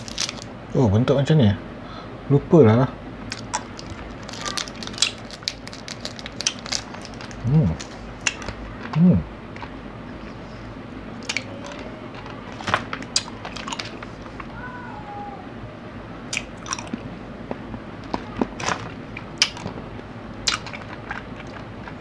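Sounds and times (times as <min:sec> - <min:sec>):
person crunching candy: 0:00.0 - 0:00.5, 0:03.3 - 0:09.0.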